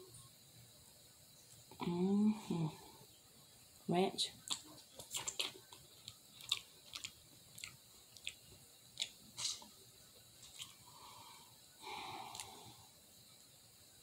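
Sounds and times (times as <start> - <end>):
person humming: 1.8 - 3.0
person chewing: 4.5 - 9.8, 10.4 - 10.8, 12.3 - 12.6.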